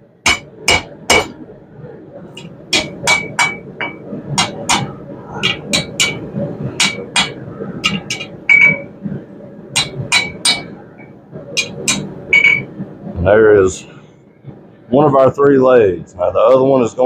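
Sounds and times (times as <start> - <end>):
hammer striking steel on anvil: 0.2 - 1.4, 2.4 - 8.9, 9.8 - 10.8, 11.6 - 12.7.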